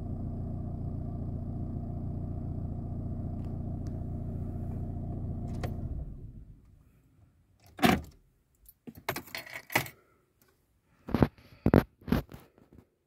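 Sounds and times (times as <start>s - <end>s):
diesel engine switching off: 0.0s - 6.6s.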